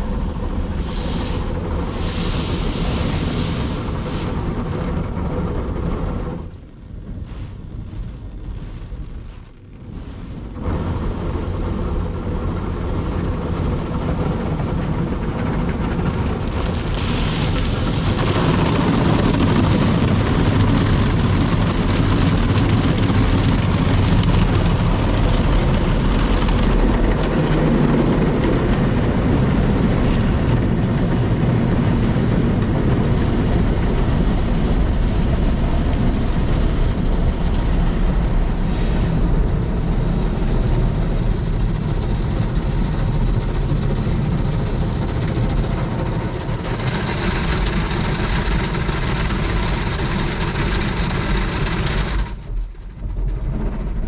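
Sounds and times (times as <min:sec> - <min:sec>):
car wash machine running: 0:00.0 - 0:54.0.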